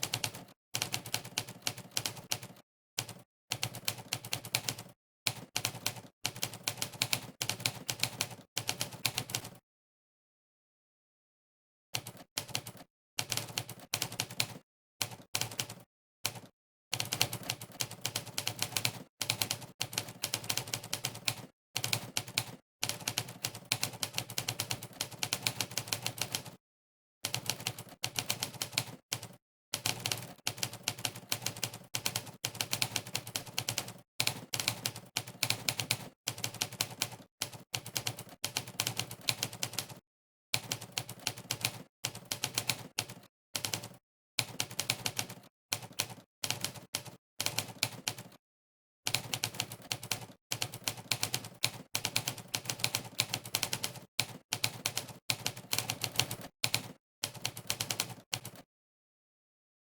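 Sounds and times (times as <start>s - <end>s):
typewriter keystroke clacks: 40.6s - 48.4s, 49.1s - 58.6s.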